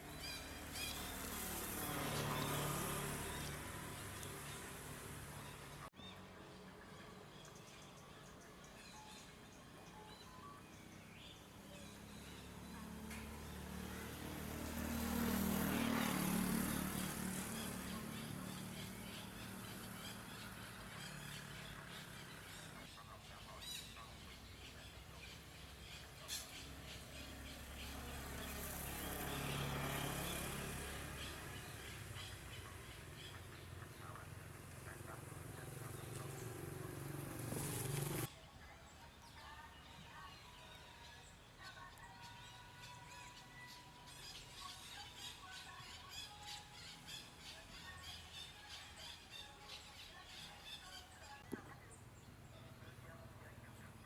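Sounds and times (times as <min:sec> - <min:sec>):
vehicle passing: 0:00.0 - 0:05.9, 0:11.5 - 0:22.9, 0:25.0 - 0:38.3.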